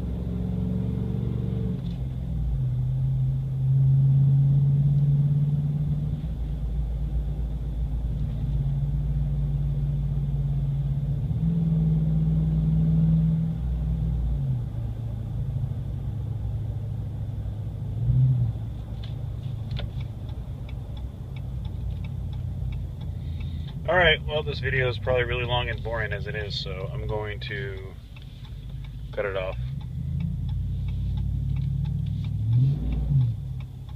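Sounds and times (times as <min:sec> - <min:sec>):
truck exhaust drone: 0:00.0 - 0:33.9
regular ticking: 0:19.3 - 0:33.9.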